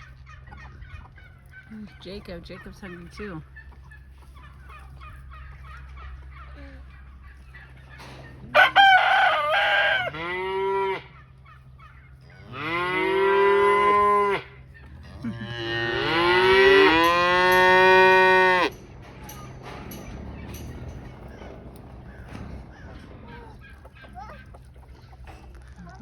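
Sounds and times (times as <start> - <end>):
cow mooing: 8.6 - 11.2, 12.4 - 20.7.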